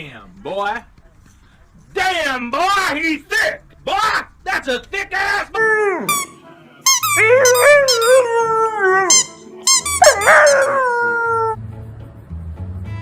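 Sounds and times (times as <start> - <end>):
dog howling: 5.5 - 6.4, 7.0 - 11.6.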